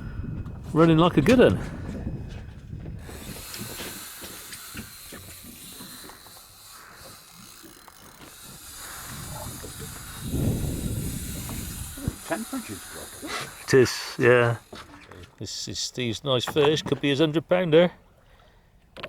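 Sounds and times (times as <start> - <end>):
fishing reel drag hissing: 3.0 - 15.4.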